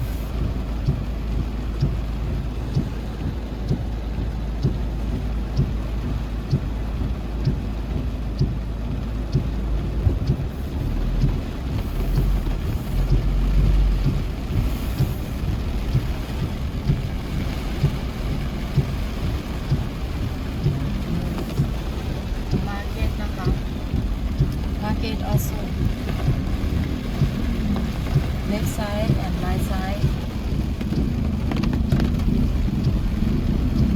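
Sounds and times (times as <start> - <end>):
low rumble: 0.0 - 33.9
steady rain falling: 0.0 - 33.9.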